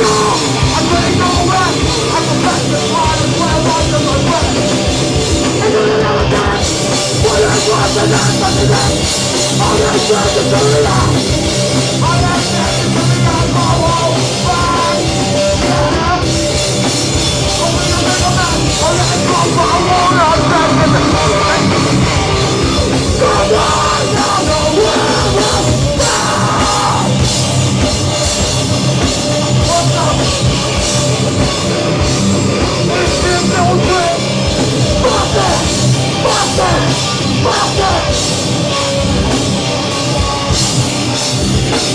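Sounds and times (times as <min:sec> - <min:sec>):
live hardcore band playing: 0:00.0 - 0:41.9
shouted vocals: 0:17.6 - 0:27.3, 0:32.8 - 0:38.8.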